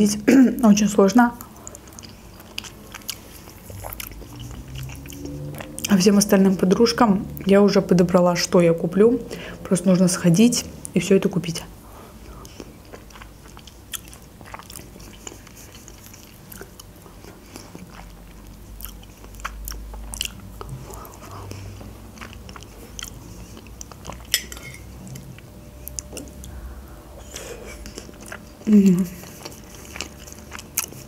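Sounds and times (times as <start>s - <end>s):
person chewing food: 1.4s - 6.0s, 12.0s - 31.0s.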